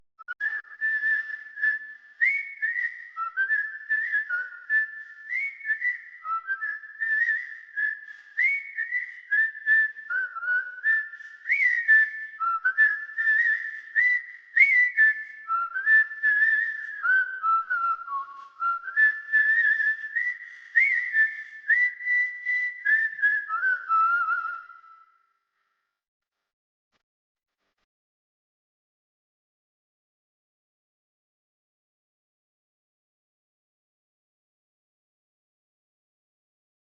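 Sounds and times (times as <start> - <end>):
whistled tune: 0.2 - 25.9.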